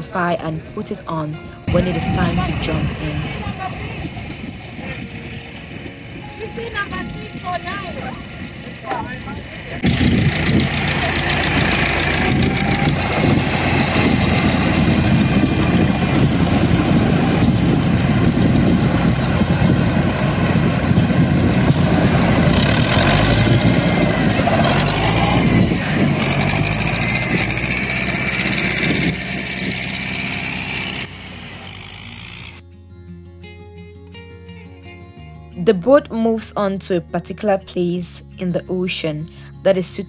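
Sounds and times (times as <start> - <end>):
boat engine running: 1.6 - 32.6
dense rushing noise: 9.3 - 32.6.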